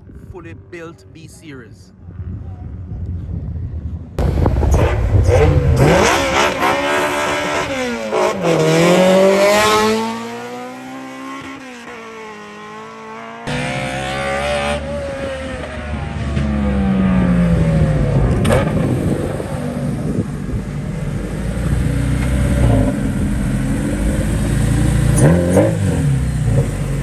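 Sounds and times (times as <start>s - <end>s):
loud rush of low noise: 4.1s - 8.7s, 15.0s - 25.2s
race car accelerating: 4.2s - 27.0s.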